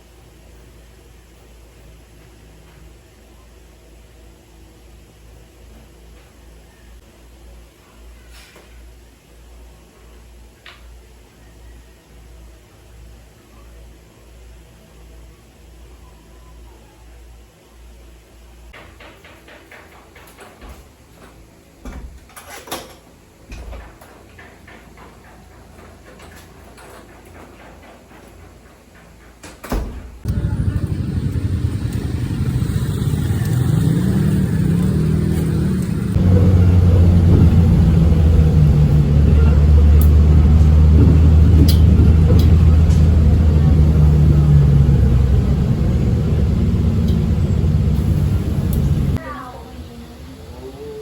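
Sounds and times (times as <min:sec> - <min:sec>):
low background hum: 0:19.7 - 0:51.0
vehicle engine and road rumble: 0:30.2 - 0:49.2.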